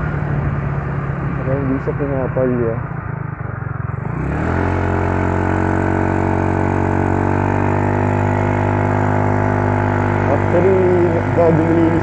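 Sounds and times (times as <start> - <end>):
scooter engine running steadily: 0.0 - 12.0.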